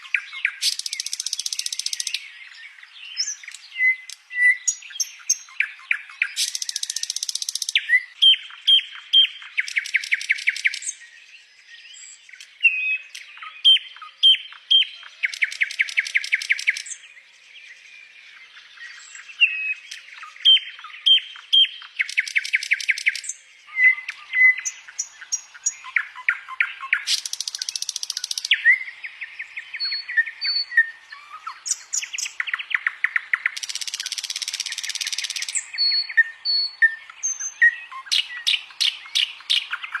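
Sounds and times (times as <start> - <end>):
songbird whistled notes: 0.0 - 11.2, 18.5 - 40.0
songbird rattling trill: 0.2 - 2.2, 6.2 - 7.9, 9.5 - 10.9, 15.2 - 16.9, 22.0 - 23.3, 24.4 - 28.8, 31.6 - 36.2.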